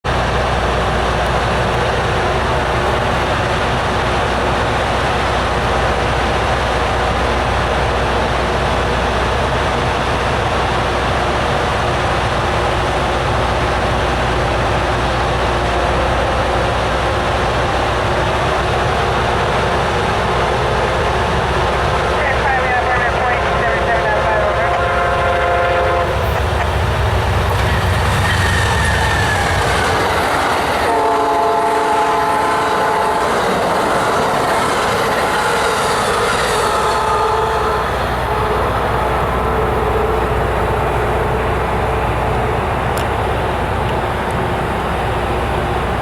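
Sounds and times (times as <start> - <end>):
diesel engines idling: 0.1 - 28.2, 37.9 - 46.0.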